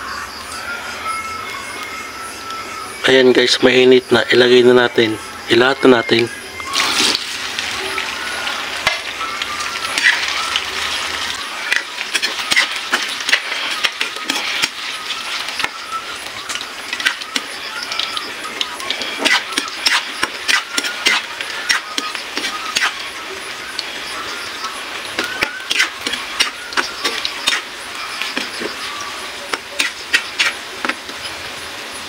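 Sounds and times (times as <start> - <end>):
food sizzling in hot oil: 0.0 - 32.0
spatula scraping pan: 6.7 - 23.2, 25.2 - 31.3.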